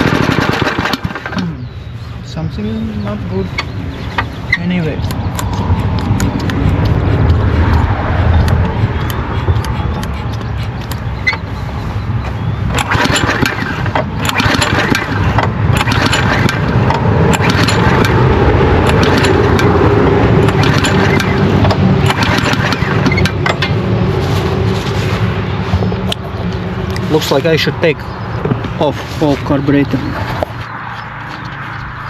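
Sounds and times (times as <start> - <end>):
engine knocks and pops: 0.0 - 1.6, 3.6 - 4.4, 12.2 - 23.8, 28.4 - 30.7
lawnmower engine running roughly: 0.0 - 1.8, 12.7 - 30.6.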